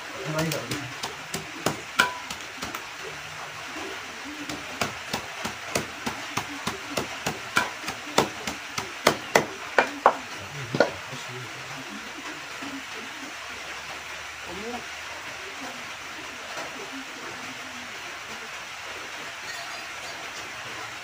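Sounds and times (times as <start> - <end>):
wooden pestle pounding in bowl: 0.6 - 2.8, 4.5 - 10.2.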